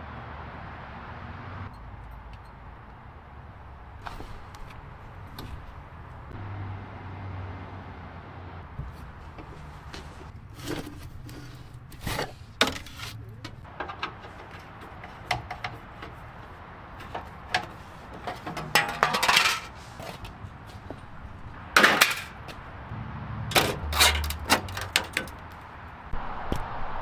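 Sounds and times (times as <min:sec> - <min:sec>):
small metal objects clattering: 0:18.2 - 0:19.8.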